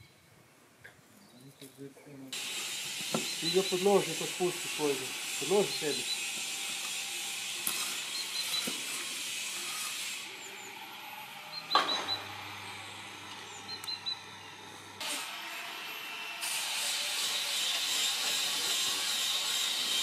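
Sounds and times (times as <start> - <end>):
steady hiss: 2.2 - 10.3
tools knocking on timber: 3.0 - 3.3.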